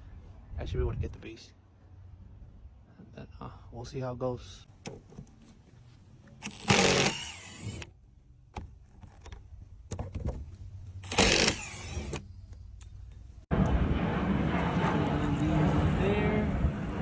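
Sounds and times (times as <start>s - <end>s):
power drill driving screws: 6.4s - 7.9s, 11.0s - 12.2s.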